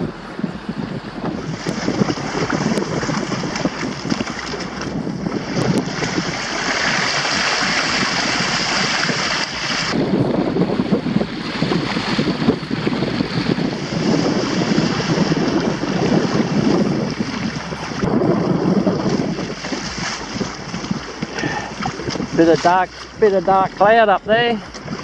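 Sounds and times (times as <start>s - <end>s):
water rushing along hull: 0.0s - 25.0s
wind buffeting microphone: 0.0s - 25.0s.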